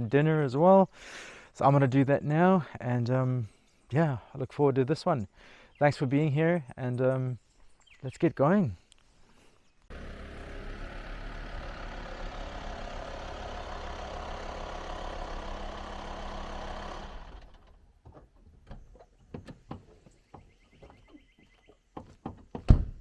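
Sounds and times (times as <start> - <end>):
vehicle engine running: 9.9 - 17.9.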